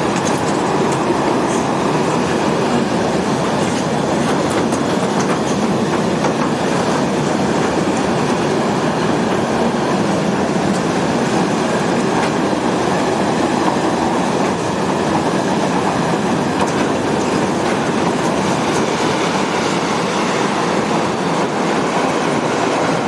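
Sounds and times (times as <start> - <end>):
train wheels rushing on rails: 0.0 - 23.0
clicks at rail joints: 0.1 - 1.7, 3.6 - 8.4, 16.6 - 18.9.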